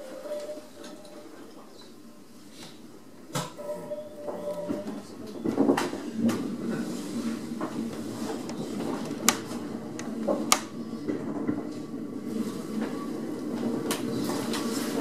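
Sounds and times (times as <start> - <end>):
train running rumble: 5.4 - 15.0.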